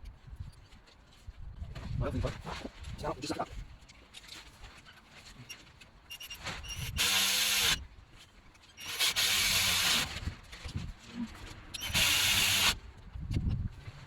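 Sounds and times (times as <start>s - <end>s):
power tool whirring: 6.1s - 7.8s, 8.8s - 10.3s, 11.7s - 12.8s.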